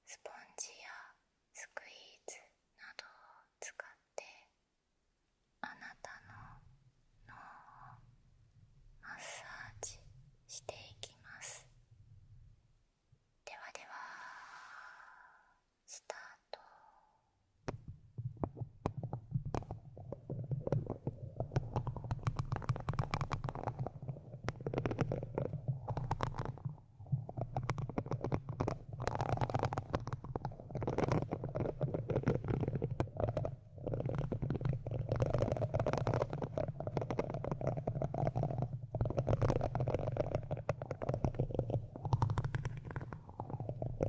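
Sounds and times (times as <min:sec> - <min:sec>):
scratching on microphone: 0:17.8 - 0:44.0.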